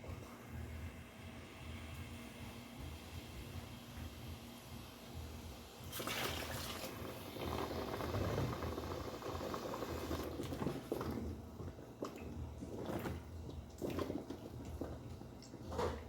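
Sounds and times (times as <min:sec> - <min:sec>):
liquid pouring into pot: 0:05.9 - 0:16.0.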